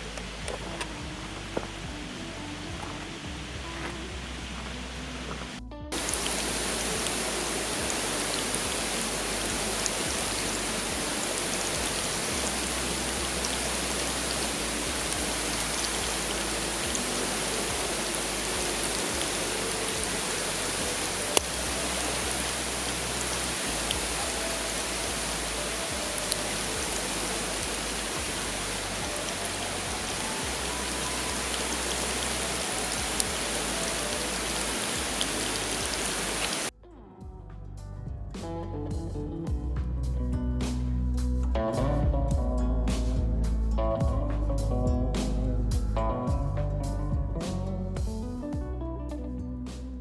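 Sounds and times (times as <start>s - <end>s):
running water: 0.0s - 36.7s.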